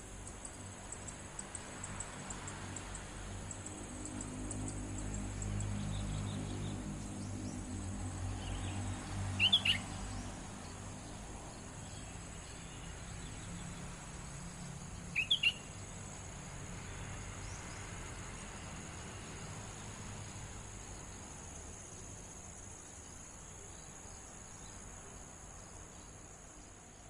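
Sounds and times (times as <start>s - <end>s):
steady high hiss: 0.0s - 4.0s
songbird chirping: 0.2s - 27.0s.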